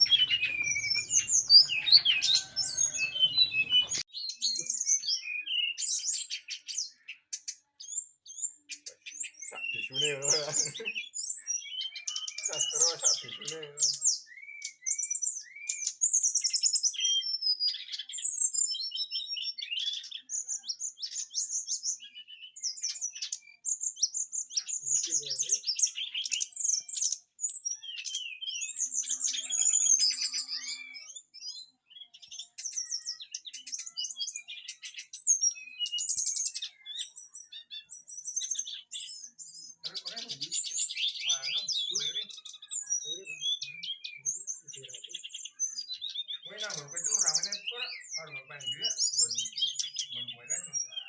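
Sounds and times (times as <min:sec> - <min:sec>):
songbird singing: 0:00.0 - 0:51.0.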